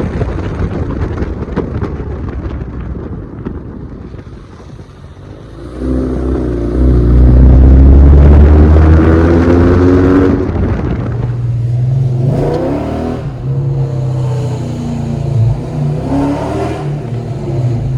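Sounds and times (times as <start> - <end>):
engine accelerating hard: 5.2 - 17.9.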